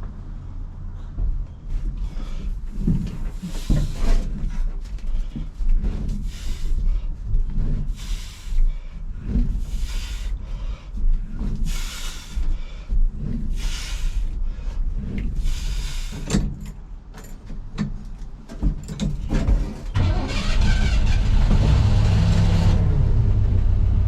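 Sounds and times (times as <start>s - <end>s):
truck rolling rumble: 0.0s - 24.0s
short rasping hisses: 15.4s - 16.3s.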